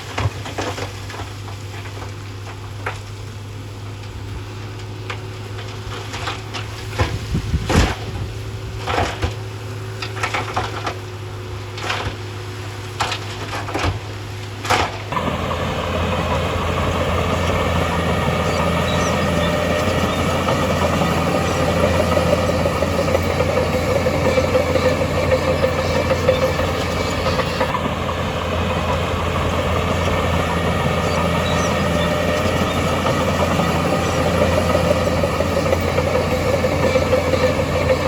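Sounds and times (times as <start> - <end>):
diesel engine running: 15.1 - 38.0.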